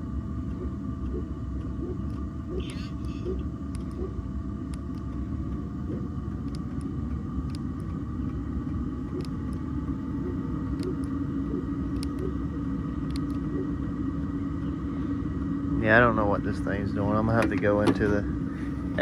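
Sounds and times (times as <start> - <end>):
heater fan and burner rumble: 0.0 - 19.0
fuel pump ticking: 17.3 - 18.2.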